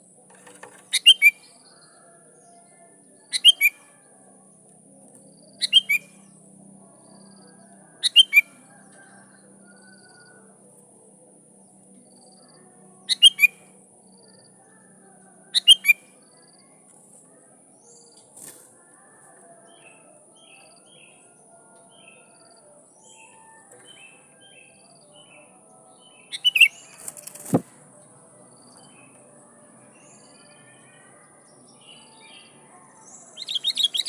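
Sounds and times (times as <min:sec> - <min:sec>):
soft bird chirps: 0:00.4 - 0:01.8, 0:33.4 - 0:34.0.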